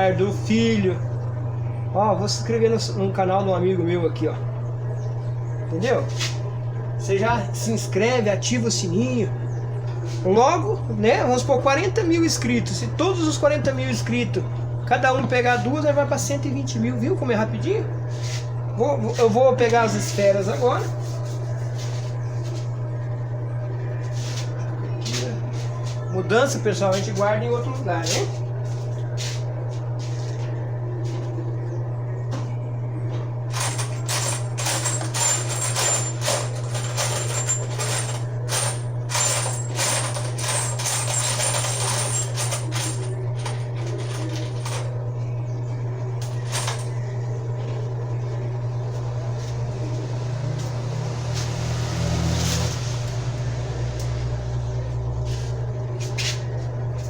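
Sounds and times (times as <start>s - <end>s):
steady low hum: 0.0s - 57.0s
metal parts clinking in a box: 33.5s - 44.9s, 46.2s - 46.9s.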